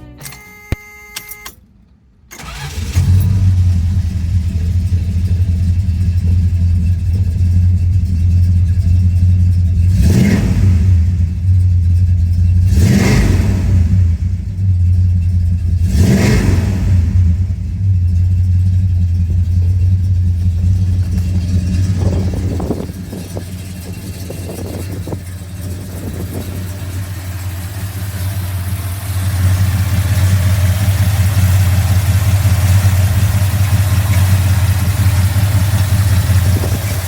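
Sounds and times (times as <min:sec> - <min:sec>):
car engine starting and idling: 0:00.0 - 0:37.0
engine revving: 0:02.4 - 0:05.2, 0:09.7 - 0:14.7, 0:15.4 - 0:37.0.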